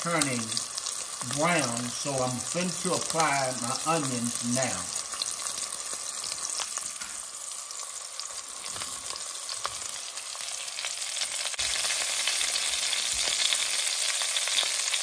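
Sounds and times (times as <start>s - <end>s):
sausage sizzling in grease: 0.0s - 15.0s.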